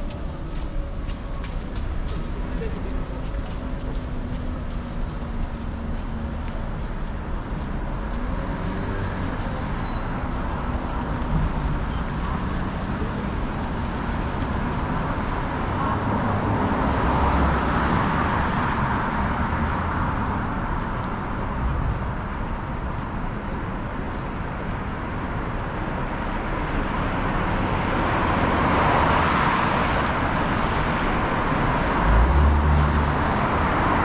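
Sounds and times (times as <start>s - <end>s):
street traffic passing: 0.0s - 34.0s
loud vehicle passing: 27.1s - 34.0s.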